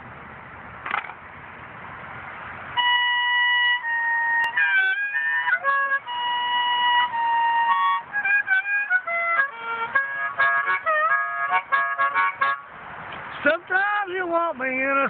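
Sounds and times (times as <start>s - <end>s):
harmonica playing chords: 2.8s - 12.7s.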